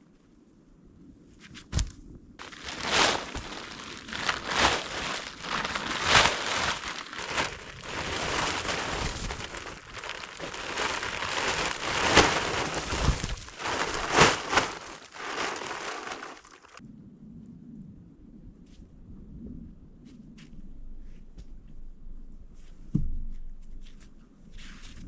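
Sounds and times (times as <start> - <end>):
rustling and crunching handling: 1.6 - 16.8
loud crunches: 1.8 - 16.8.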